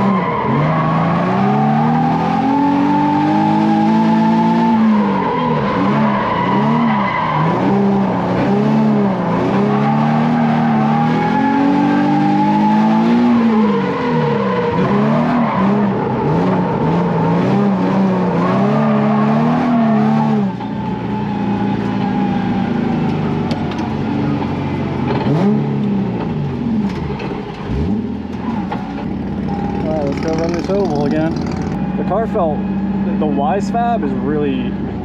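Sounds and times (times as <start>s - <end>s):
car engine revving hard: 0.0s - 20.6s, 25.1s - 26.9s, 27.7s - 28.3s.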